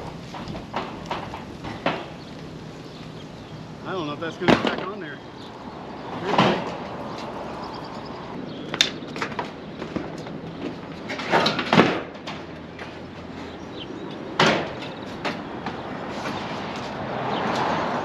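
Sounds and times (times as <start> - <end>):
metal roofing knocks and bangs: 0.2 - 2.2, 4.4 - 5.0, 6.3 - 6.8, 8.7 - 13.0, 14.3 - 15.9.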